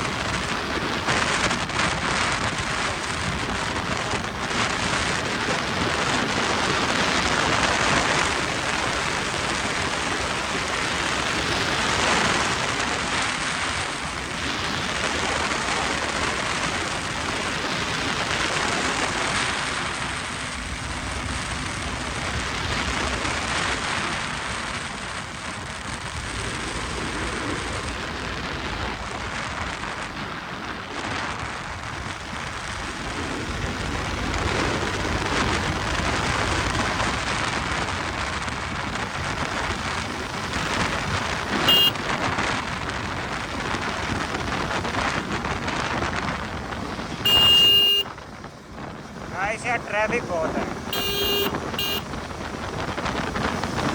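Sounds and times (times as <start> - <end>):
wind and road rush: 0.0 - 53.9
horn beep: 41.5 - 42.0, 47.2 - 48.2, 49.4 - 52.2.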